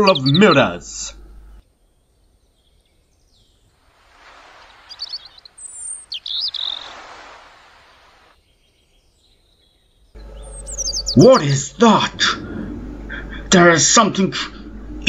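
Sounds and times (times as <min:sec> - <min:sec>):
bird chirps: 0:00.0 - 0:13.5
rushing noise: 0:03.8 - 0:08.3, 0:10.2 - 0:15.0.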